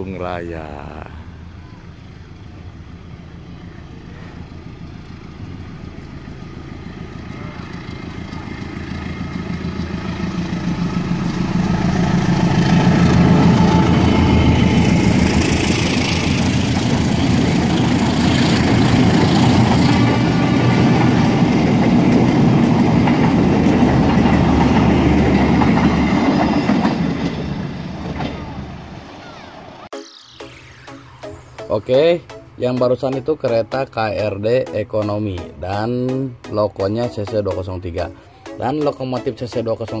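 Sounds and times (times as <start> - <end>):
locomotive engine running: 1.2 - 30.8
wheels clattering over rail joints: 16.2 - 28.7.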